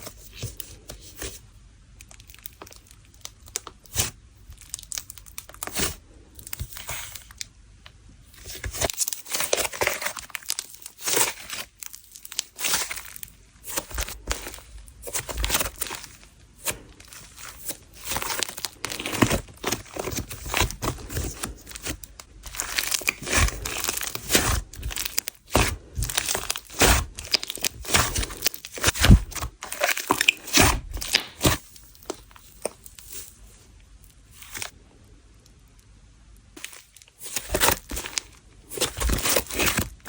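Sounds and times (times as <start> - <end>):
hands squishing slime: 8.6 - 33.0.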